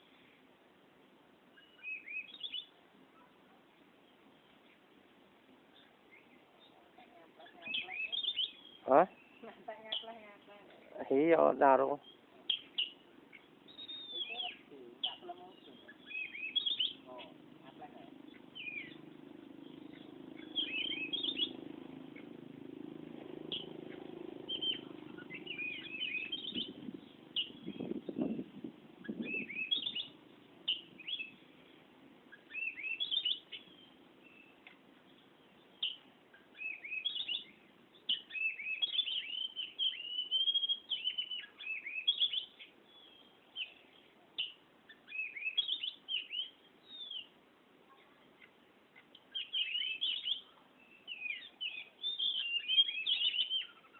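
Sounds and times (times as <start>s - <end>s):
bird singing whistles and chirps: 1.5s - 2.7s, 7.5s - 10.0s, 12.0s - 17.3s, 18.3s - 22.3s, 23.4s - 31.4s, 32.3s - 34.6s, 35.7s - 47.3s, 49.3s - 53.9s.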